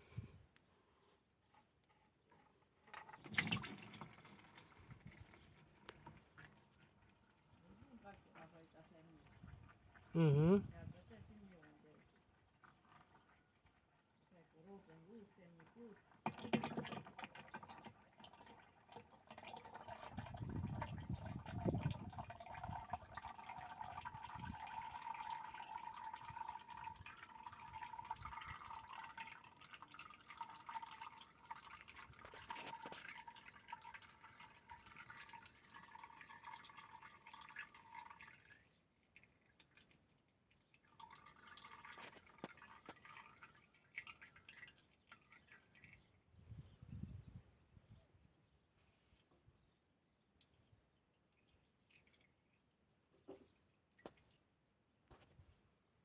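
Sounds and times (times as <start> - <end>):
oil trickling into container: 0.0 - 10.1, 10.7 - 47.4, 49.1 - 56.0
dripping: 2.8 - 7.7, 15.8 - 46.3, 50.3 - 54.5.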